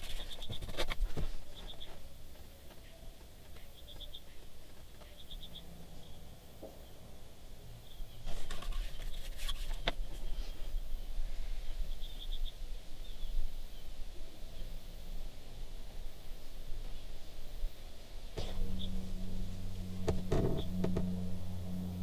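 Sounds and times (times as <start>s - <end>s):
low rumble: 18.4s - 22.0s
sharp clicks and knocks: 18.4s - 22.0s.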